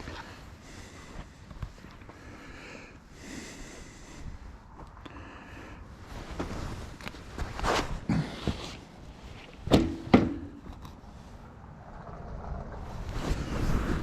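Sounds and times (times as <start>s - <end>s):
scuffing and shuffling: 6.0s - 10.0s
knocks and thuds: 9.7s - 10.7s.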